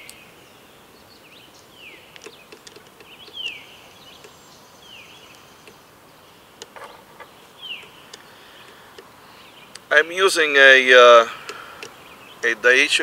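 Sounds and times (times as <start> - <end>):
outdoor background noise: 0.0 - 13.0
light taps and clicks: 2.1 - 3.6, 11.4 - 12.0.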